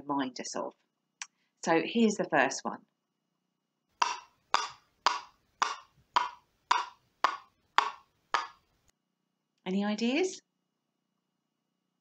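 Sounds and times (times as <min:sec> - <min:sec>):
coconut shells clopping: 0:04.0 - 0:08.6.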